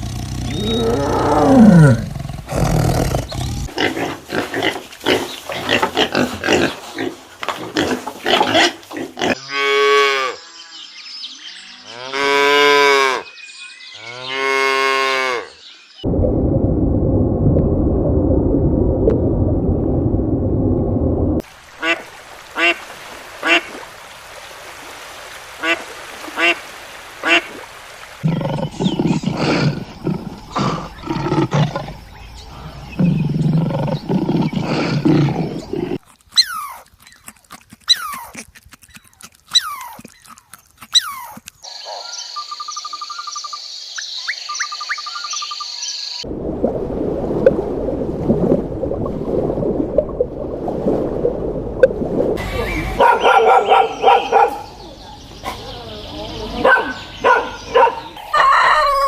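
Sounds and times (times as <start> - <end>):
repeated animal calls: 0.0 - 2.2, 28.2 - 43.6
low rumbling animal roar: 0.0 - 3.8.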